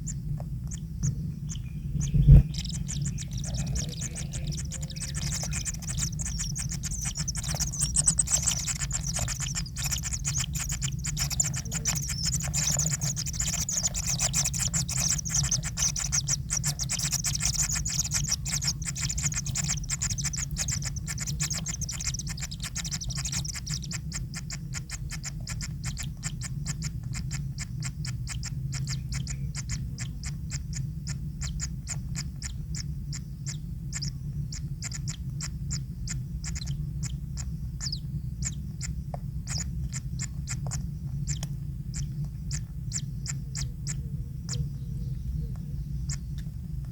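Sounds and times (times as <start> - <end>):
chicks ticking clicks: 0.0 - 46.9
steady low hum: 0.0 - 46.9.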